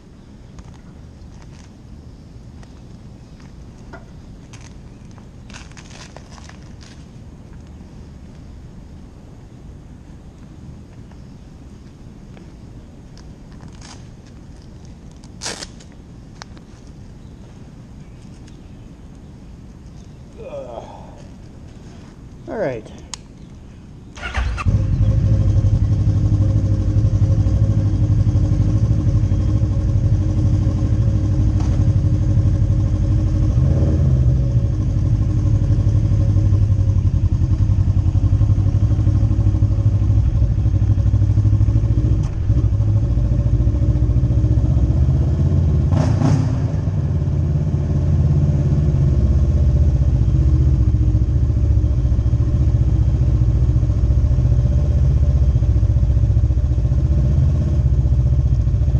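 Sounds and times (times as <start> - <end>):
motorcycle engine running: 24.2 - 58.9.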